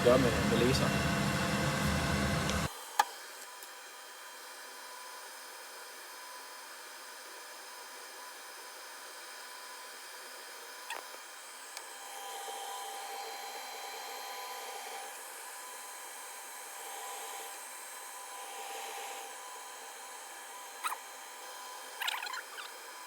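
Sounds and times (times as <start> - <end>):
fume extractor fan hiss: 0.0 - 2.7
laser machine whining: 0.0 - 23.0.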